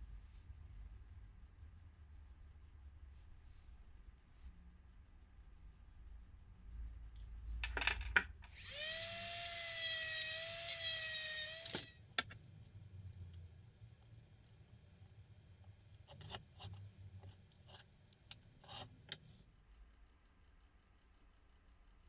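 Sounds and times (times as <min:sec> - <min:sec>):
high-speed power tool whining: 0:08.5 - 0:12.0.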